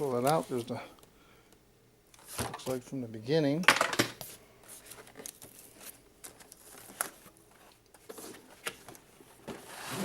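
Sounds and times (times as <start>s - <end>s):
packaging rustling and crinkling: 4.6s - 10.0s.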